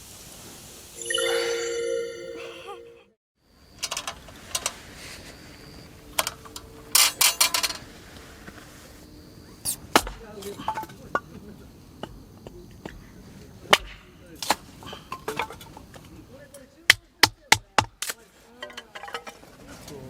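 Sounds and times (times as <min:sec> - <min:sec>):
ringing tone: 0:01.0 - 0:03.1.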